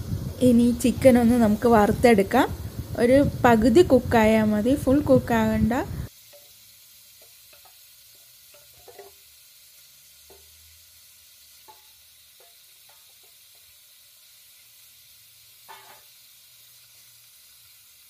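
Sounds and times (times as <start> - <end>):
chicken sizzling in oil: 0.0 - 18.0.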